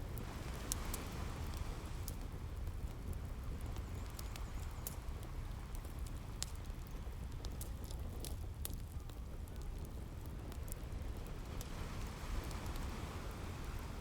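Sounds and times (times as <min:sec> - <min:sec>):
sea waves: 0:11.8 - 0:14.0.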